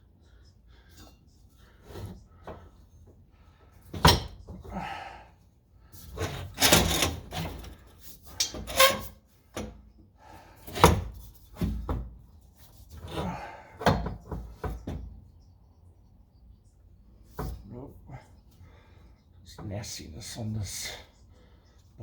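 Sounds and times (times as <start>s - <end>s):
metal exhaust parts clunking: 5.9s - 9.9s.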